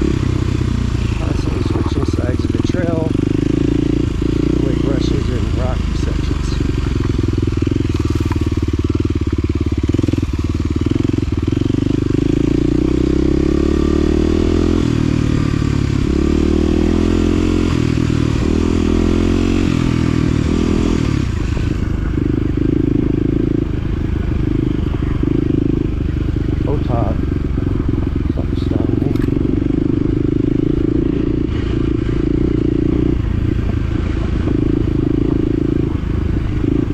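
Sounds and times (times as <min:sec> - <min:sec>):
off-road vehicle engine running: 0:00.0 - 0:36.9.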